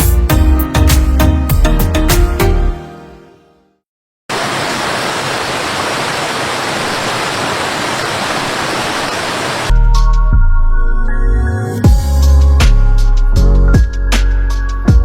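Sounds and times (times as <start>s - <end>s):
music: 0.0s - 3.8s, 9.7s - 15.0s.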